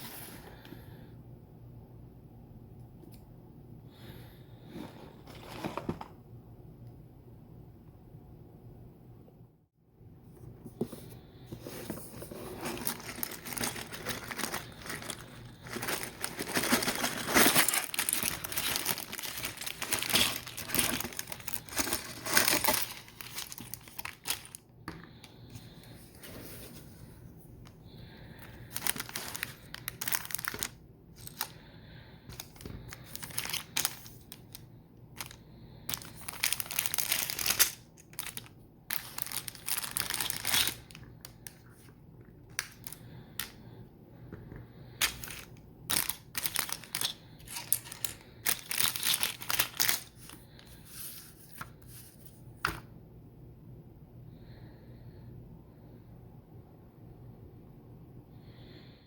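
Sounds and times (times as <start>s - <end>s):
plastic packaging crinkling and tearing: 12.2s - 24.6s, 28.6s - 31.6s, 32.3s - 34.6s, 35.2s - 41.9s, 42.5s - 43.6s, 45.0s - 50.7s.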